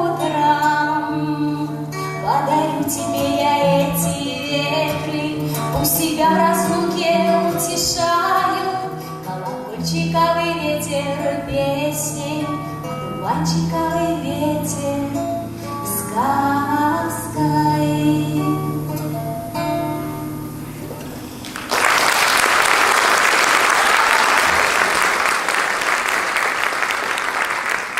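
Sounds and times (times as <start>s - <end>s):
woman singing: 0.0s - 9.1s, 9.7s - 19.2s
acoustic guitar: 0.0s - 21.7s
audience applause: 21.0s - 27.9s.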